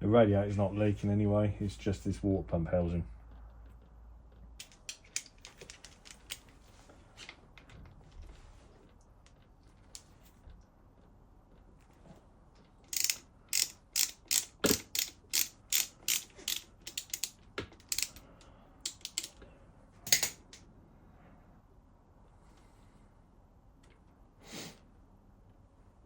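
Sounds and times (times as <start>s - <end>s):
ratchet wrench clicking: 4.6s - 6.4s, 12.9s - 18.2s, 18.8s - 19.4s, 20.1s - 20.6s.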